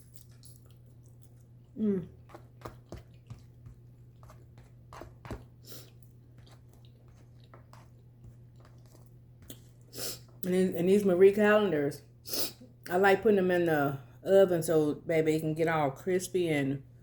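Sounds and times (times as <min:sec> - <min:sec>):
chewing and biting food: 0:00.0 - 0:09.9
crunches of crisp crust: 0:00.0 - 0:09.9
low steady hum: 0:00.0 - 0:17.0.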